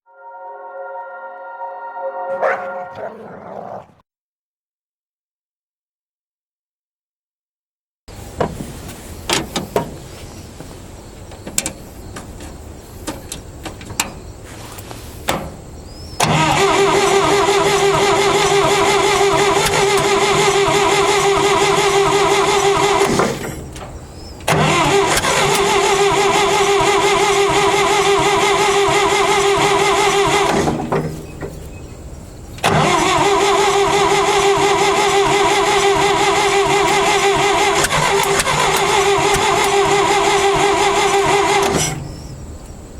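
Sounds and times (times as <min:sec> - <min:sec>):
engine starter cranking: 0:16.2 - 0:31.3, 0:32.6 - 0:42.2.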